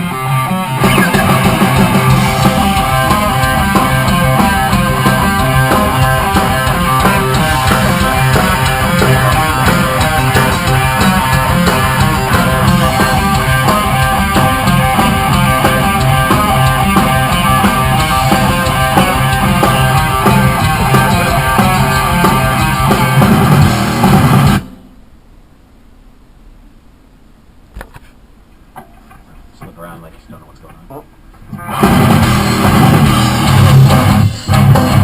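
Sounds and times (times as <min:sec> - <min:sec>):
rock band playing: 0:00.0 - 0:24.9, 0:31.6 - 0:35.0
distorted electric guitar: 0:00.0 - 0:25.0, 0:31.4 - 0:35.0
drum kit: 0:00.0 - 0:25.0, 0:31.6 - 0:35.0.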